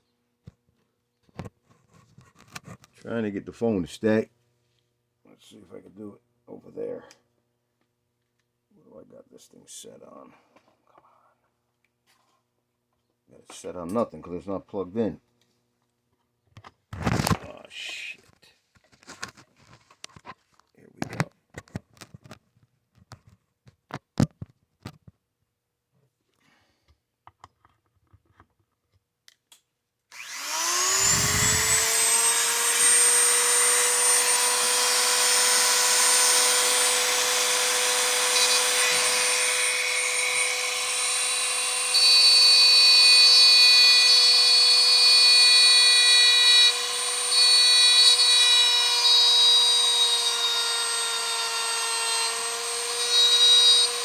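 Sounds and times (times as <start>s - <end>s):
rotary tool whining and grinding: 30.1s - 54.0s.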